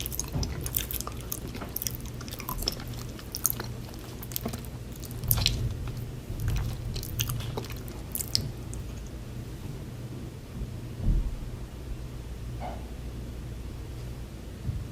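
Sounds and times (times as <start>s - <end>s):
person chewing and biting food: 0.0s - 9.2s
steady low hum: 0.0s - 14.9s.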